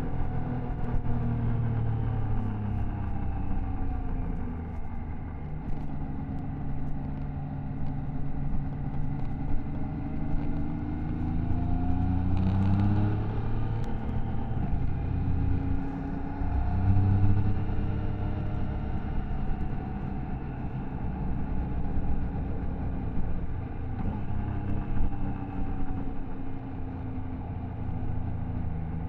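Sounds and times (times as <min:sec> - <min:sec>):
motorcycle engine revving: 0:08.6 - 0:20.1.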